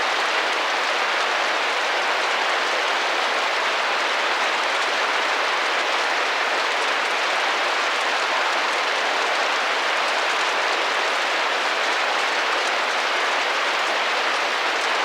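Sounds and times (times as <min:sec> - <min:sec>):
rain drumming on a window: 0:00.0 - 0:15.0.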